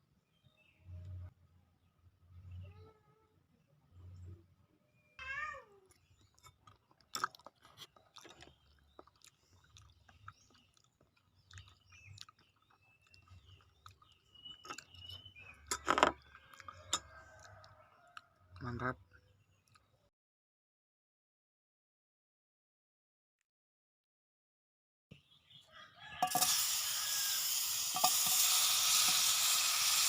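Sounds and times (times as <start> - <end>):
small crunches: 5.9 - 17.0
person chewing food: 5.9 - 18.2.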